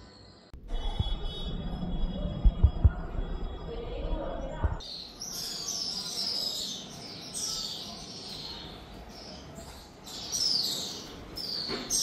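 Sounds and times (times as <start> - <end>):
birds chirping with falling calls: 4.7 - 12.0.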